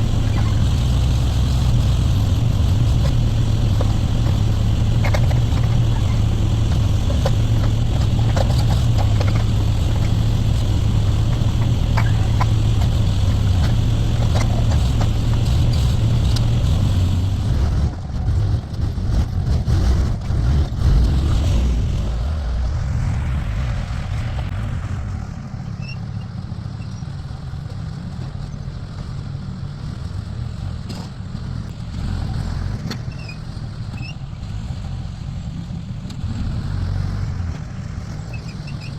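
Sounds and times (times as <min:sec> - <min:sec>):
backhoe engine running: 0:00.0 - 0:38.9
knocks and clatter: 0:00.3 - 0:22.1.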